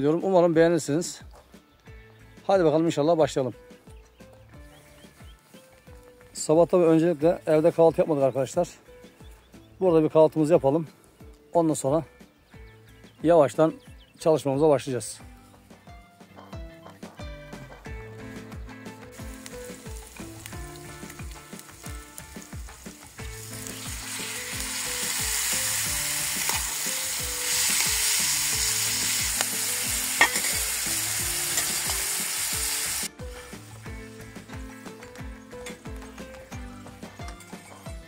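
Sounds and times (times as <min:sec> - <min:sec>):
food sizzling in a pan: 0:19.1 - 0:34.3.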